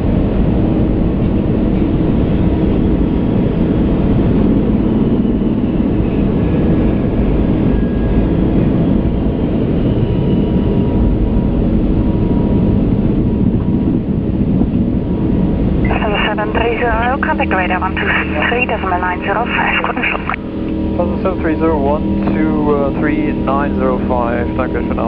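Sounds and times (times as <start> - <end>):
airflow and engine rushing: 3.3 - 25.0
faint steady hum: 15.8 - 25.0.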